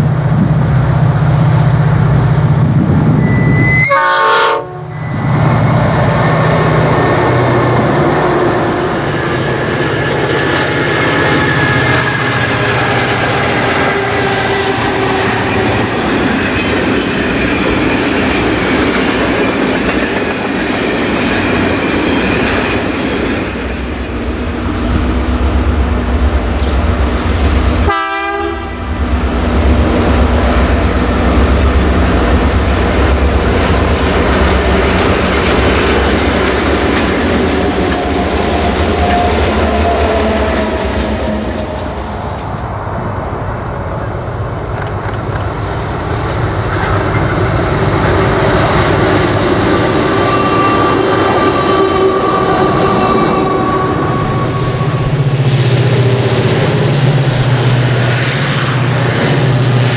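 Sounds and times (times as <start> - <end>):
diesel locomotive engine: 0.0 - 59.9
train horn: 3.2 - 5.3, 13.6 - 16.0, 27.8 - 28.9, 49.8 - 55.4.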